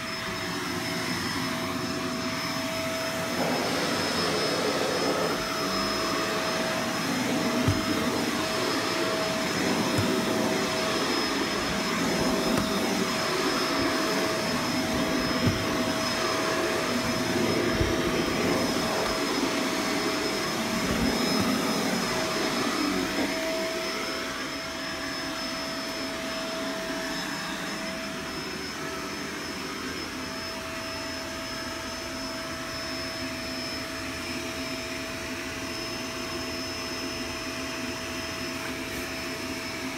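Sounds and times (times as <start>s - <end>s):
vacuum cleaner running: 0.0s - 39.9s
nozzle knocks and bumps: 14.8s - 15.9s.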